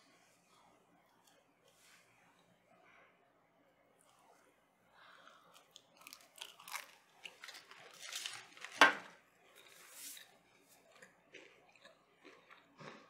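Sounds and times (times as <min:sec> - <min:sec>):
chewing crunchy toast: 0:04.0 - 0:13.0.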